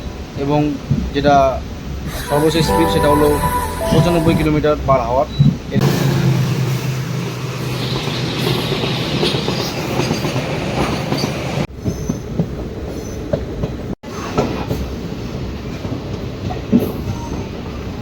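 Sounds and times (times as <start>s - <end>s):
train rumbling along track: 6.5s - 13.9s.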